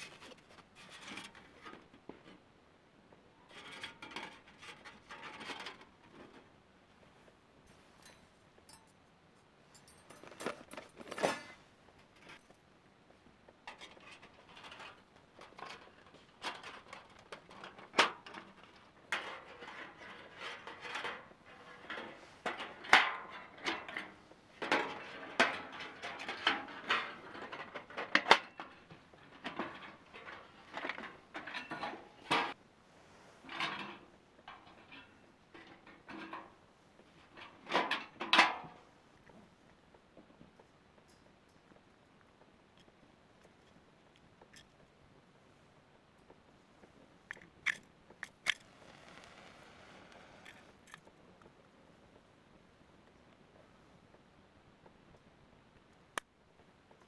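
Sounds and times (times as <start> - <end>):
objects clattering and clinking: 7.7 - 12.6.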